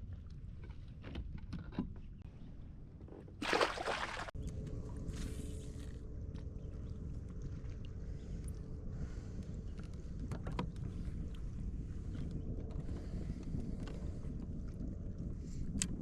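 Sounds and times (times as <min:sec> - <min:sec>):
wind and water against hull: 0:00.0 - 0:16.0.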